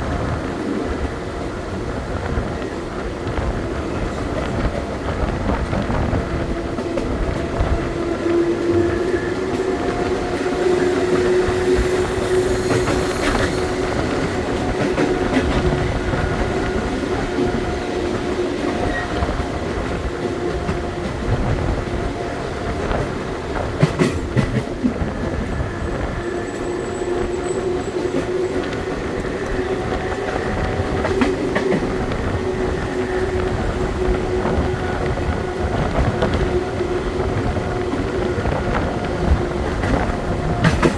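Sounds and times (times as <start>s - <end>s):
electric train hum: 0.0s - 40.9s
wheels rumbling on rail: 0.0s - 40.9s.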